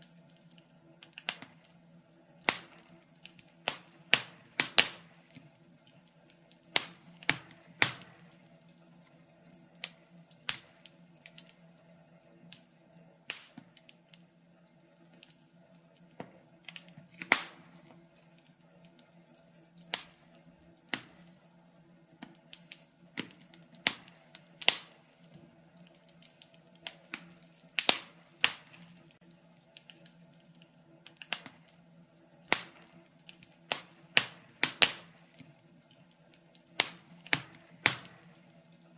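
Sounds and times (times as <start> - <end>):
faint steady hum: 0.0 - 38.9
wood fire crackling and popping: 0.0 - 38.9.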